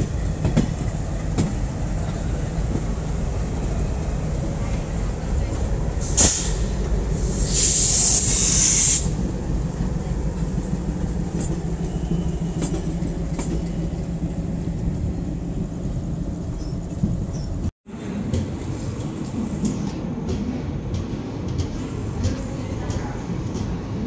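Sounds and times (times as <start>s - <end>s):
diesel locomotive engine drone: 0.0s - 24.0s
hiss: 6.0s - 9.2s.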